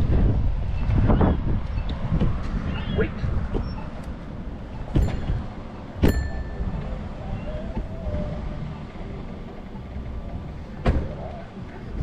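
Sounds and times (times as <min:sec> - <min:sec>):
wind and road rumble: 0:00.0 - 0:12.0
metallic clank: 0:04.7 - 0:06.9.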